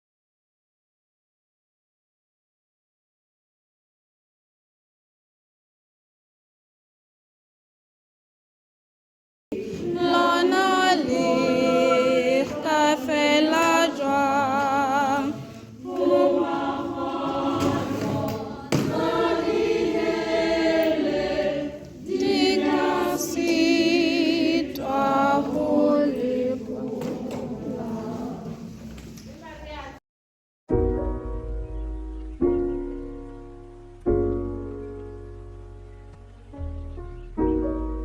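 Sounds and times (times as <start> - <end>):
choir singing unaccompanied: 9.5 - 29.0.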